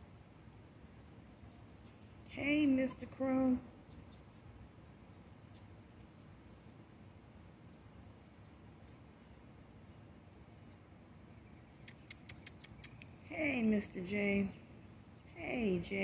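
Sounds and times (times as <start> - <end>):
faint background noise: 0.0 - 16.0
small bird chirping: 0.1 - 4.4, 5.1 - 5.8, 6.4 - 6.8, 8.0 - 9.1, 10.3 - 13.3.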